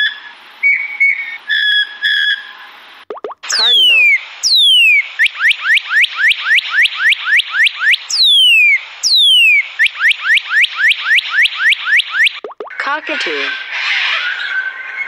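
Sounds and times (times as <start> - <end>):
bird whistling song: 0.6 - 2.5, 3.2 - 12.6.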